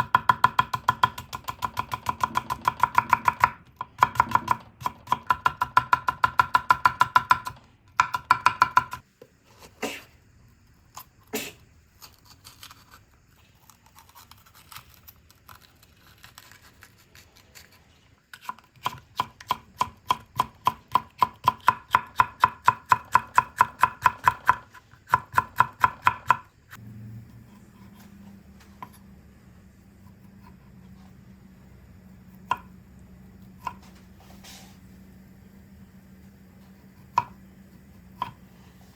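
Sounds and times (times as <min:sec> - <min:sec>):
knife chopping on cutting board: 0:00.0 - 0:09.0, 0:32.3 - 0:32.7, 0:37.0 - 0:37.4, 0:38.2 - 0:38.4
low steady hum: 0:26.4 - 0:38.9.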